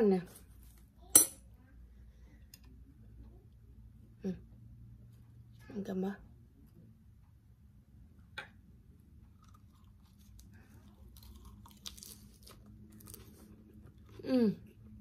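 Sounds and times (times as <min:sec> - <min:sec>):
crunchy chewing: 0:09.3 - 0:14.2.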